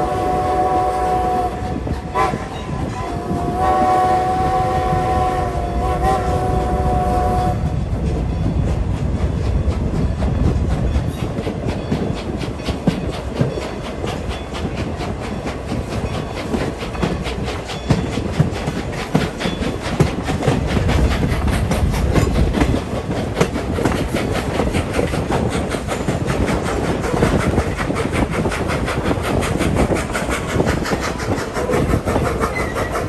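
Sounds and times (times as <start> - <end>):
steam locomotive whistle: 0.0 - 7.7
train wheels clickety-clack: 0.0 - 33.0.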